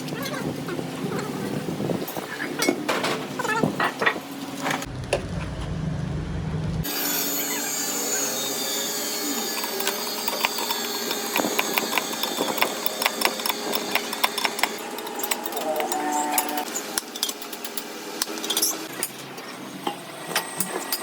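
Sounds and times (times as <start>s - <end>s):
tool scraping metal: 7.2s - 17.8s.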